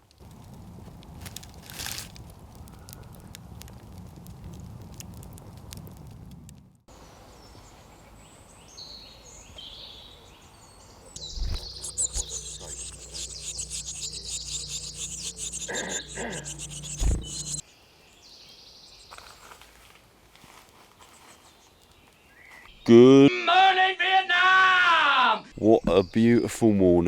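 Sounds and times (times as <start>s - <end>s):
birds singing: 7.4s - 19.2s
sharp thumps: 11.2s - 17.6s
steady low hum: 11.2s - 17.6s.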